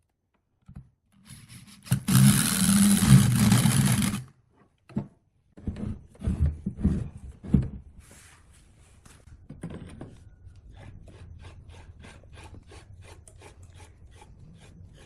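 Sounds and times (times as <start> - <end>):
workshop machine running: 1.3 - 4.3
irregular knocks and thuds: 4.9 - 7.9.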